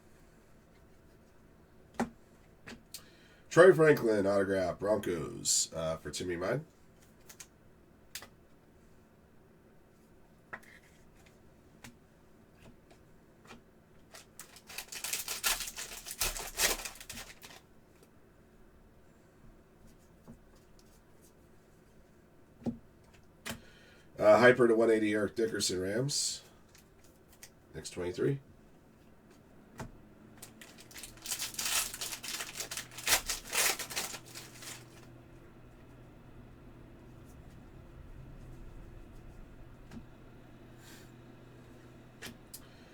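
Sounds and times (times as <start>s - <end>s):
foil pack crinkling: 14.1s - 17.7s, 30.4s - 35.1s.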